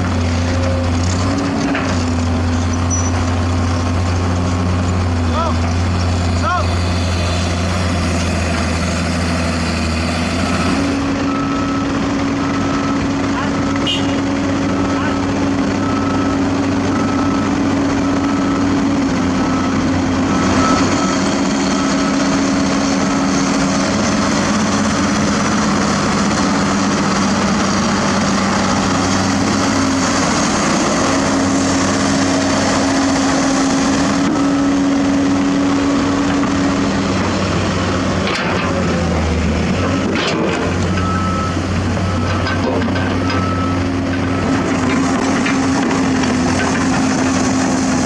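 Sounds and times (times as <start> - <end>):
diesel machinery engine hum: 0.0 - 48.0.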